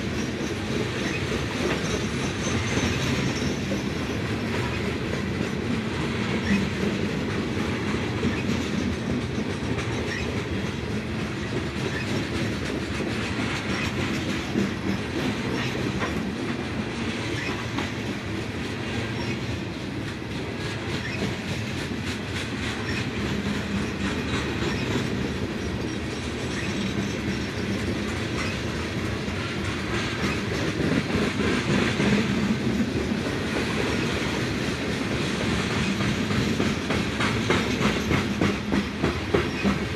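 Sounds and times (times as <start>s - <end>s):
freight train rolling past: 0.0s - 39.9s
wheels clicking over rail joints: 0.0s - 39.9s.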